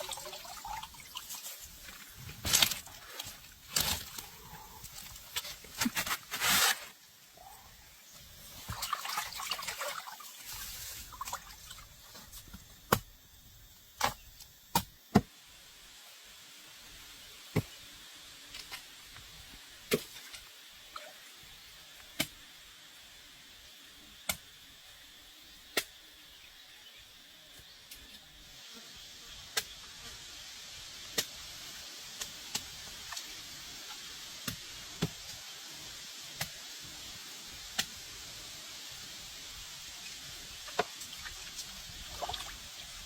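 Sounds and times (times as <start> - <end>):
rustling and handling noise: 1.2 - 7.0.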